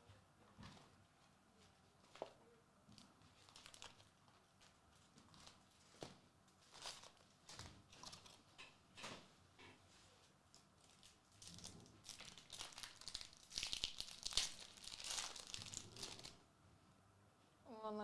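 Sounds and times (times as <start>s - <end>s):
card pack wrappers crinkling: 3.0s - 4.7s, 6.6s - 7.4s, 10.6s - 16.4s.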